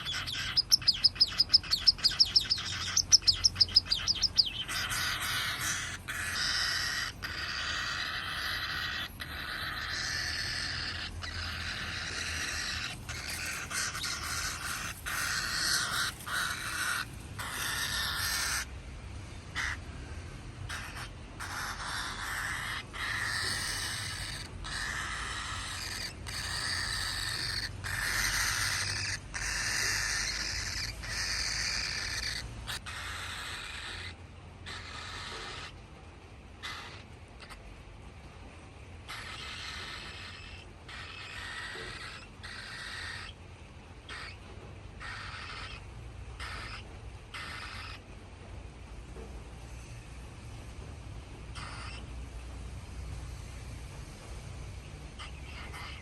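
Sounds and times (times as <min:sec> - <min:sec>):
cockatiel chick chirping: 0:00.0 - 0:18.7, 0:20.7 - 0:35.8, 0:45.0 - 0:45.8, 0:46.4 - 0:48.0, 0:51.5 - 0:52.0, 0:55.2 - 0:56.0
raspy hissing begging call: 0:00.0 - 0:18.7, 0:20.7 - 0:35.7, 0:39.1 - 0:43.3, 0:55.2 - 0:56.0.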